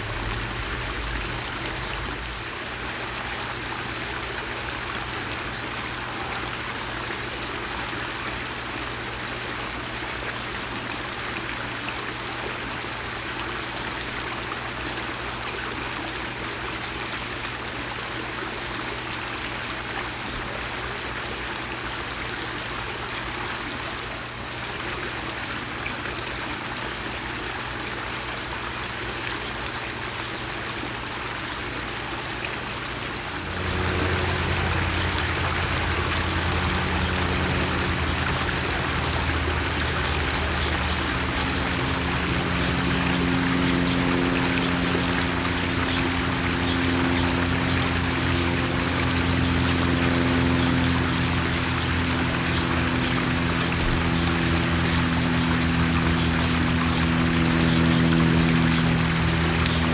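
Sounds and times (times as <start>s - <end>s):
louder low hum: 0.0s - 2.7s, 32.8s - 59.9s
low hum: 0.0s - 2.8s, 32.9s - 59.9s
steady rushing noise: 33.2s - 59.9s.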